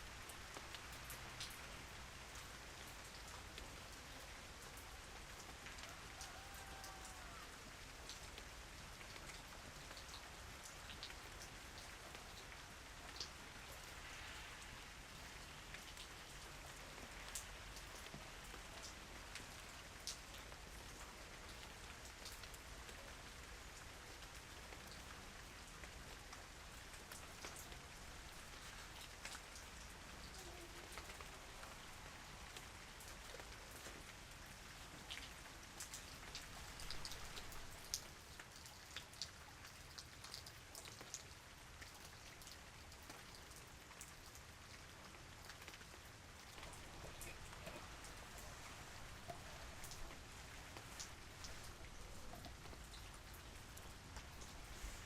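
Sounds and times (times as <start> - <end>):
quiet steady rain: 0.0 - 55.0
raindrops ticking: 23.7 - 55.0.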